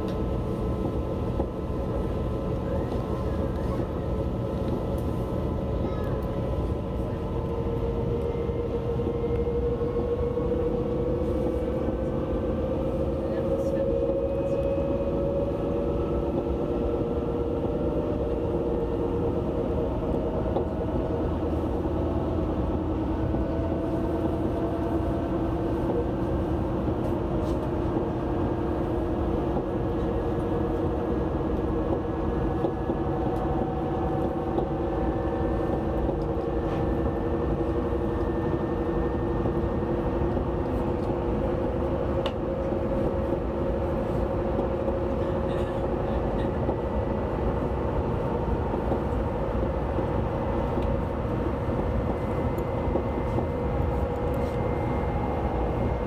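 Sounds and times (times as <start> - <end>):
train rolling rumble: 0.0 - 56.0.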